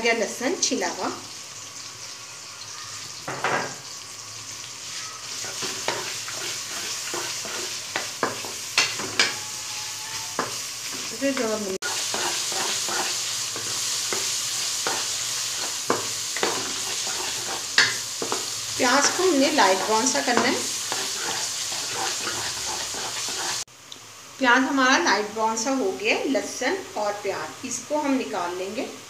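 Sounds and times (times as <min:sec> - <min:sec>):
onions sizzling in hot oil: 0:00.0 - 0:29.0
wooden spatula scraping pan: 0:05.3 - 0:09.4, 0:10.4 - 0:23.7.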